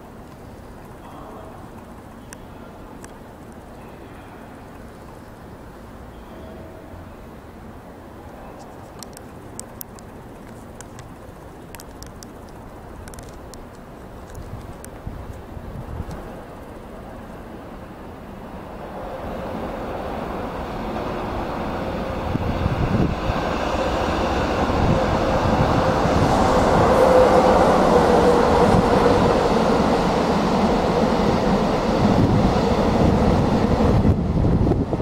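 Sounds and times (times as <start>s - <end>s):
freight train rumble: 0.0s - 35.0s
wheels clacking over rail joints: 8.6s - 17.3s.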